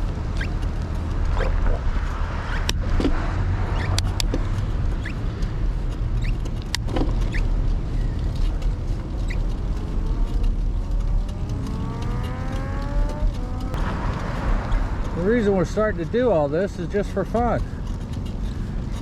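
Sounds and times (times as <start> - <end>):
bicycle road noise: 0.0 - 19.0
motor vehicle accelerating: 0.0 - 19.0
wind rumble on microphone: 0.0 - 19.0
sharp clicks: 0.3 - 1.8.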